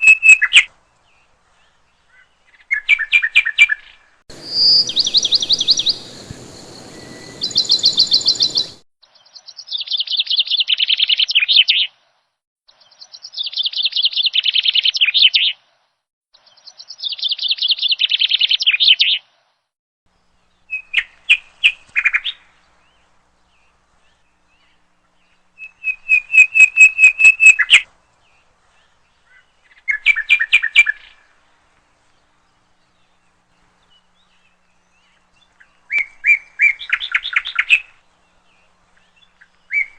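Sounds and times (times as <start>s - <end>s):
songbird trilling: 0.0s - 0.7s, 2.1s - 8.8s, 25.6s - 27.8s
faint hiss: 4.3s - 8.8s.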